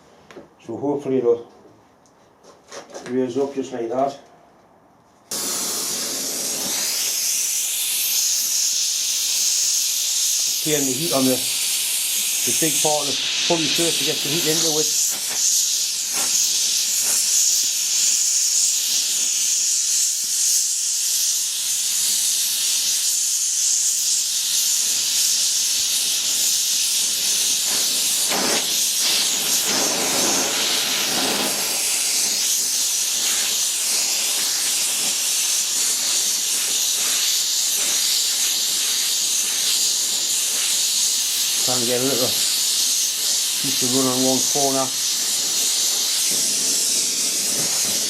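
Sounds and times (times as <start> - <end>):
torch flame hissing: 5.3 - 48.0.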